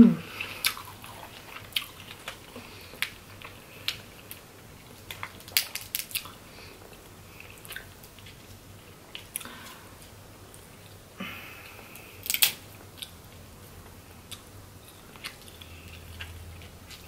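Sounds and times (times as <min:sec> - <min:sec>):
crab shells cracking: 0:05.0 - 0:06.3, 0:12.2 - 0:12.6.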